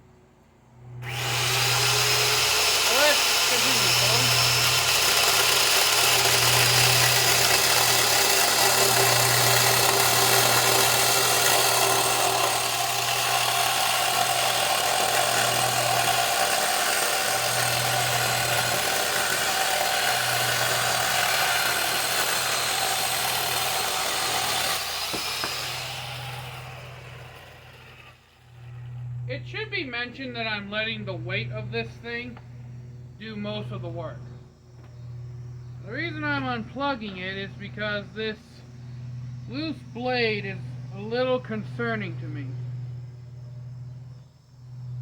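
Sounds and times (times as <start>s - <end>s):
electric chainsaw cutting wood: 1.0s - 29.1s.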